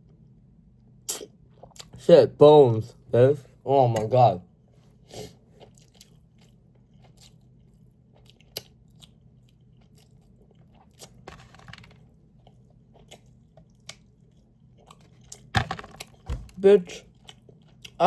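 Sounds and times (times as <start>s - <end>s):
chewing and crunching: 5.2s - 16.2s, 16.9s - 18.0s.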